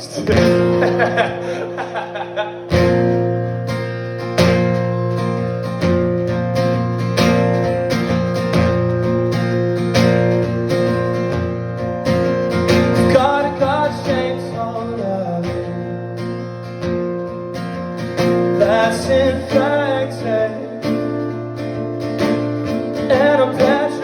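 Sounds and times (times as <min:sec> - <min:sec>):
acoustic guitar strumming chords: 0:00.0 - 0:24.0.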